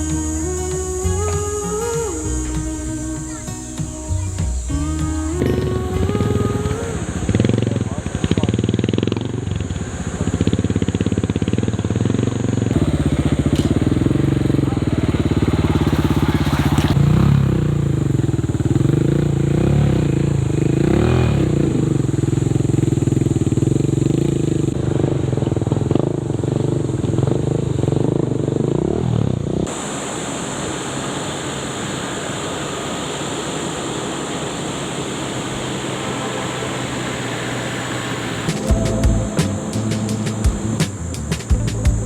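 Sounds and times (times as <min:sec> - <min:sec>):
engine revving: 0:00.0 - 0:30.0, 0:30.6 - 0:42.0
driving noise rush: 0:36.8 - 0:42.0.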